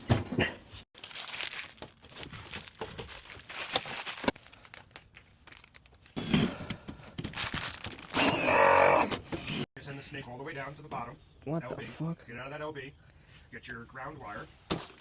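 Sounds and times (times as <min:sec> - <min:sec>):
crinkling and rustling: 0:00.1 - 0:08.2, 0:14.2 - 0:15.0.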